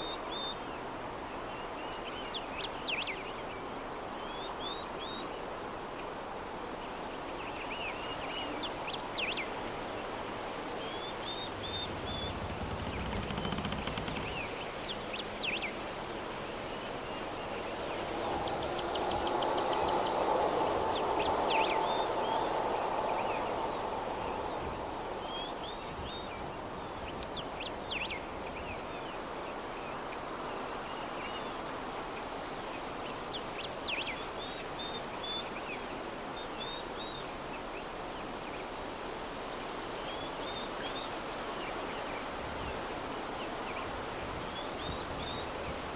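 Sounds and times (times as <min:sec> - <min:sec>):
soft breeze: 0:00.0 - 0:45.9
small birds chirping: 0:10.5 - 0:17.8.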